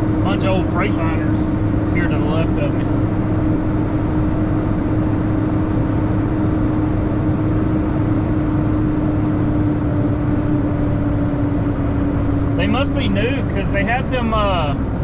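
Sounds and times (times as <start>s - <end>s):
truck diesel engine rumbling: 0.0s - 15.0s.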